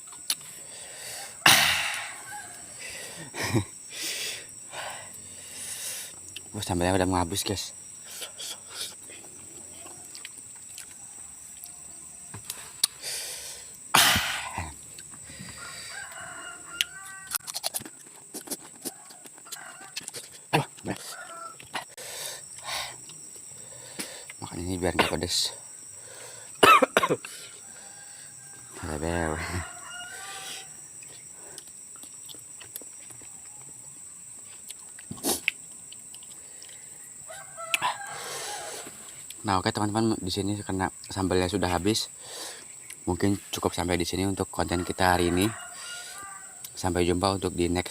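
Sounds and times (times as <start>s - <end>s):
crunchy fruit being chewed: 0.0s - 0.8s, 6.0s - 6.6s, 7.9s - 13.9s, 14.5s - 24.6s, 30.1s - 39.5s, 42.6s - 43.7s
steady high hiss: 0.0s - 10.6s, 11.5s - 15.9s, 30.1s - 37.4s
chicken squawk: 27.6s - 30.8s, 37.3s - 39.1s, 44.8s - 46.7s
mouth clicks: 34.6s - 36.8s.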